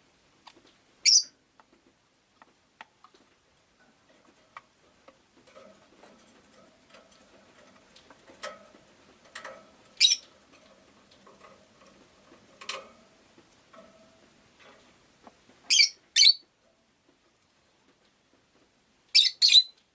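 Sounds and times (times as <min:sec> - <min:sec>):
lovebird chirping: 0:01.0 - 0:01.3, 0:10.0 - 0:10.2, 0:15.7 - 0:16.4, 0:19.1 - 0:19.8.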